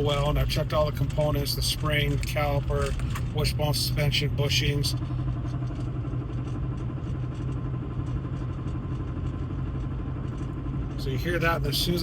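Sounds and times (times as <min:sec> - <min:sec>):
rapid suspension knocking: 0:00.0 - 0:04.1
road and drivetrain hum: 0:00.0 - 0:12.0.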